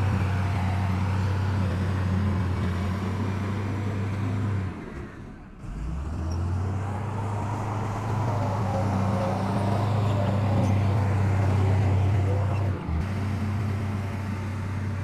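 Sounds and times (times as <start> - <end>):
diesel engine humming: 5.7 - 15.0.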